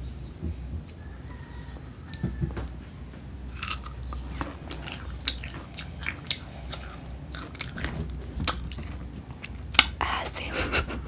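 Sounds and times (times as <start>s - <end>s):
crunchy chewing of mango: 3.4s - 10.0s.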